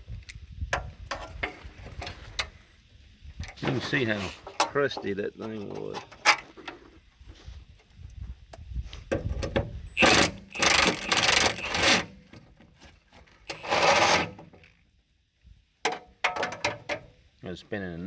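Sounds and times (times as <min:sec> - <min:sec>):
impact wrench rattling: 0:09.9 - 0:12.1, 0:13.5 - 0:14.4.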